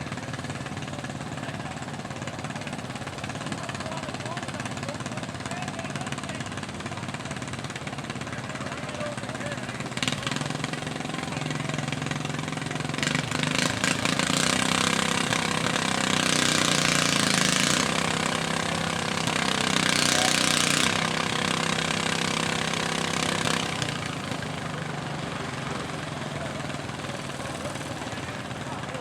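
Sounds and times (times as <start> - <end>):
engine running: 0.0 - 29.0.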